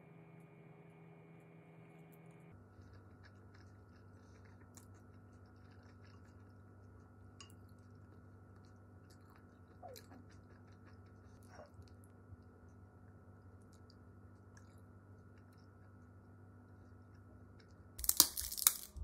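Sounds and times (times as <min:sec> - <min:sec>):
steady low hum: 0:00.0 - 0:19.0
chewing: 0:02.5 - 0:19.0.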